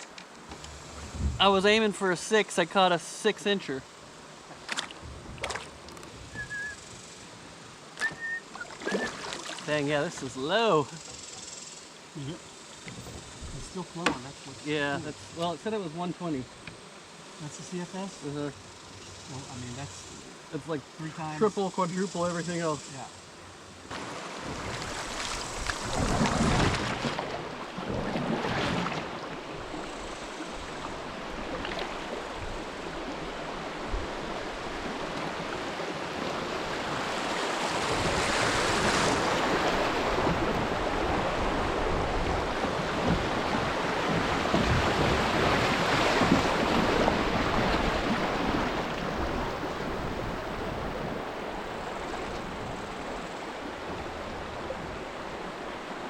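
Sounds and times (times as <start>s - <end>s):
river water rushing: 0.0s - 10.9s, 23.3s - 56.0s
wind on microphone: 0.6s - 1.6s, 5.0s - 6.8s, 13.0s - 13.8s, 24.5s - 27.2s, 37.8s - 53.0s.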